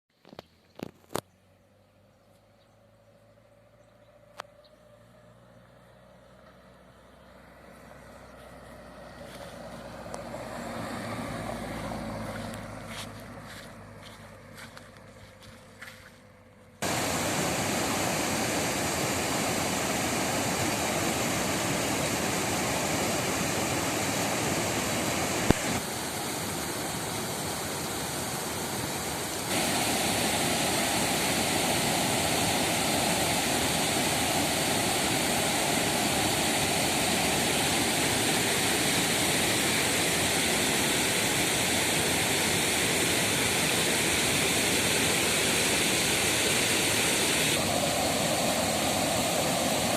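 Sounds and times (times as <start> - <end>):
waterfall rushing: 16.8 - 49.9.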